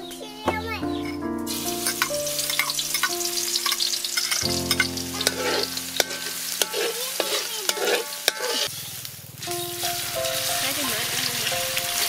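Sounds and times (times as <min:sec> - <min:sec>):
garlic sizzling in hot oil: 0:01.0 - 0:12.0
spatula stirring in pan: 0:01.8 - 0:08.8.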